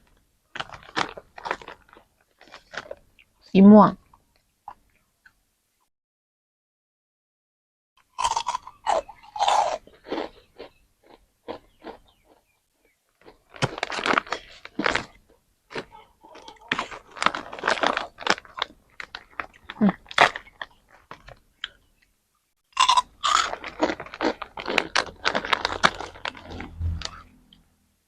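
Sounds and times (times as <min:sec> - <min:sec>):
chewing and crunching sweet: 0:00.0 - 0:03.4, 0:08.0 - 0:22.1, 0:22.7 - 0:26.8.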